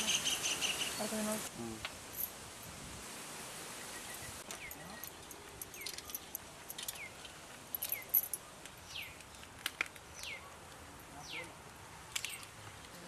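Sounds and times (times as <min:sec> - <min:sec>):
bird calling with whistled notes: 0:00.0 - 0:01.2.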